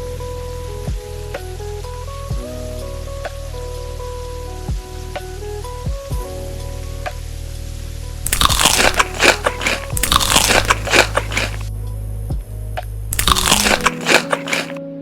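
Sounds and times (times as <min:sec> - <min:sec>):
background music with held notes: 0:00.0 - 0:08.2
crunchy chewing: 0:08.2 - 0:11.7, 0:13.1 - 0:14.8.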